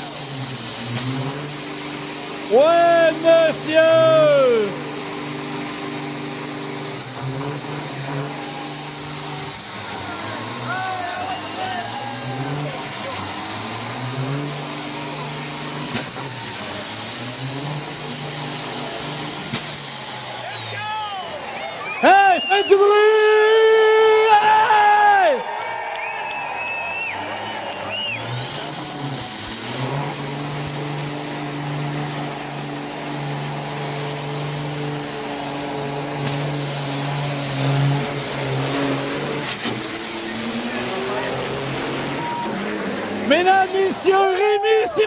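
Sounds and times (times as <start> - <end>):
high whine: 0.0 - 25.3, 26.0 - 45.0
diesel truck engine running: 0.0 - 45.0
turbocharger whistle: 0.0 - 45.0
sharp snap: 15.9 - 16.2, 19.5 - 19.8
sharp click: 19.5 - 19.8.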